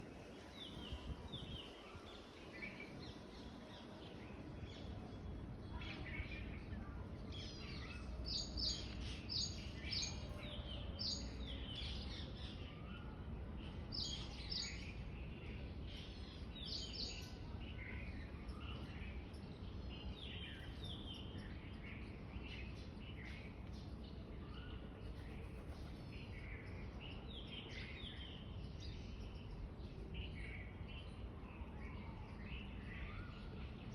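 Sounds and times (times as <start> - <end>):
small birds chirping: 11.1 - 33.9.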